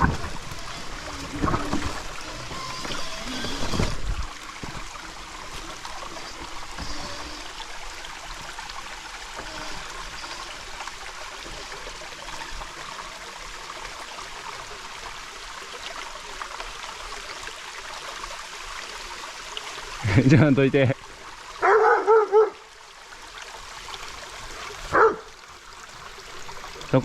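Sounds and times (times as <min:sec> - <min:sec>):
running water: 0:00.0 - 0:27.0.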